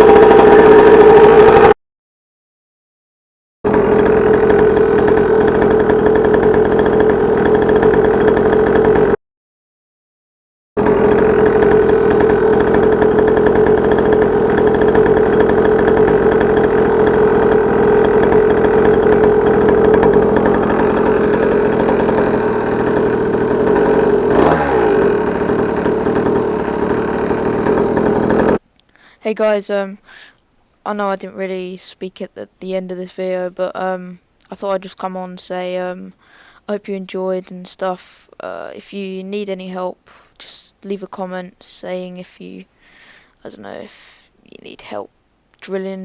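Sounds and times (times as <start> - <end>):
two-stroke engine running: 0.0 - 1.7, 3.7 - 9.2, 10.8 - 29.2.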